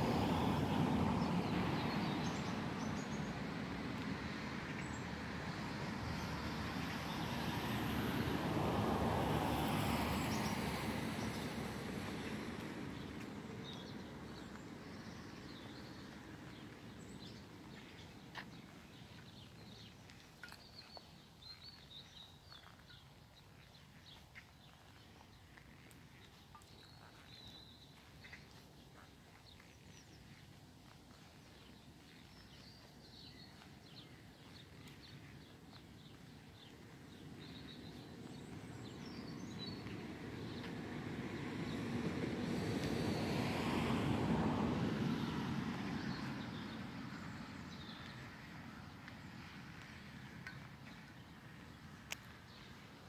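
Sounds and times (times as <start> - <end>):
low traffic rumble: 0.0 - 53.0
small birds chirping: 13.0 - 40.8, 45.9 - 53.0.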